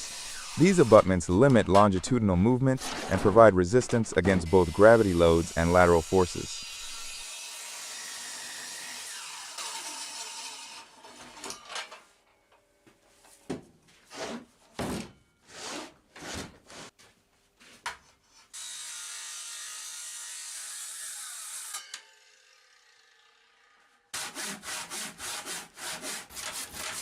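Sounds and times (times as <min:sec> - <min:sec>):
cutting strokes on timber: 0:00.0 - 0:07.4, 0:24.1 - 0:27.0
tool cutting timber: 0:00.0 - 0:11.3, 0:24.1 - 0:27.0.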